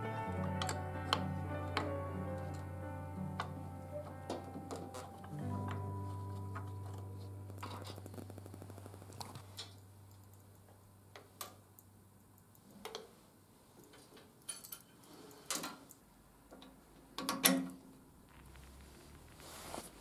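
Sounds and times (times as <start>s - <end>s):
background music: 0.0s - 9.3s
metal parts clicking and knocking: 13.9s - 15.8s.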